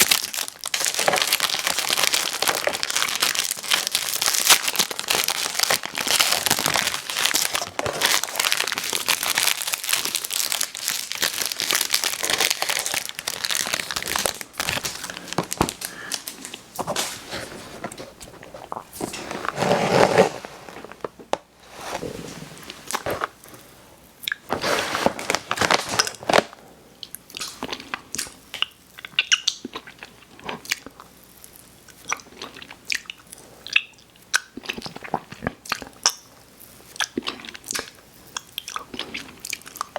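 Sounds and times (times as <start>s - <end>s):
snack wrapper crinkling: 0.0s - 21.5s, 22.6s - 23.6s, 24.3s - 26.6s.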